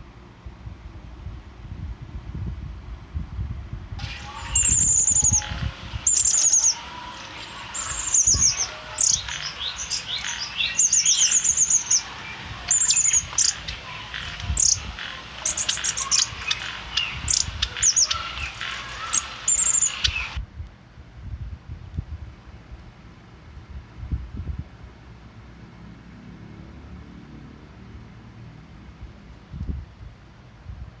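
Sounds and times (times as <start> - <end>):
bird chirping: 4.0 - 20.4.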